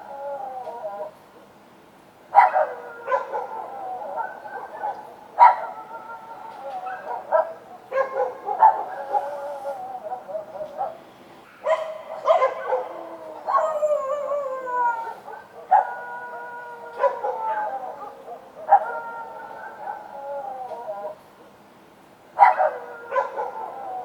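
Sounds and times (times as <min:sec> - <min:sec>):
dogs howling: 0:00.0 - 0:01.2, 0:02.3 - 0:11.0, 0:11.6 - 0:21.2, 0:22.4 - 0:24.0
dogs barking: 0:02.3 - 0:06.1, 0:06.7 - 0:14.1, 0:15.2 - 0:20.2, 0:22.4 - 0:24.0.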